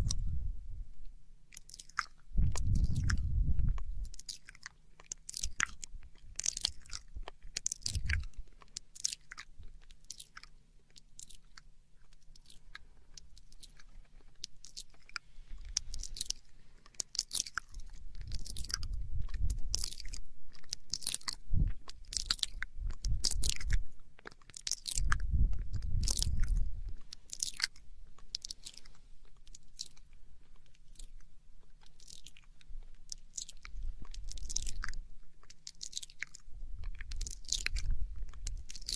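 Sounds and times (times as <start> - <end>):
wet mouth clicks and smacks: 0.0 - 0.3, 1.5 - 38.9
low rumble: 0.0 - 1.2, 2.3 - 4.2.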